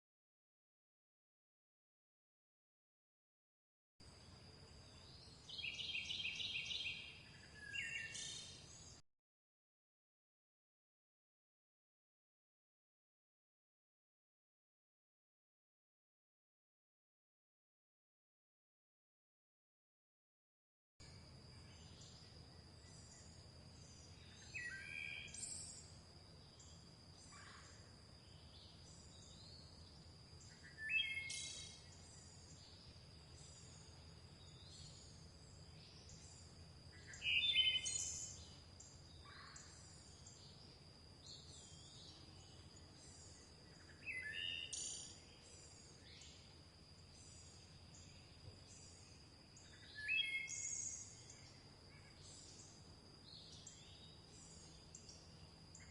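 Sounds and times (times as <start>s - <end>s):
faint low hum: 4.0s - 9.0s, 21.0s - 55.9s
bird singing quick phrases: 37.0s - 38.4s.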